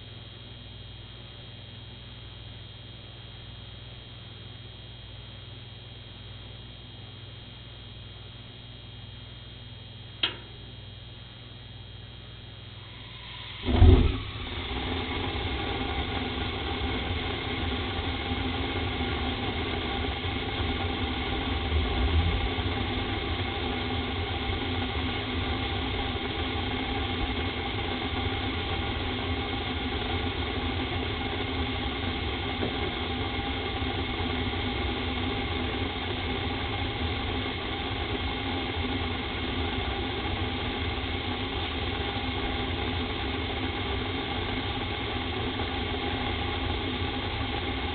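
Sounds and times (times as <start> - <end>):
furnace rumbling roar: 8.2 - 47.9
furnace burners igniting whoomp: 12.7 - 47.9.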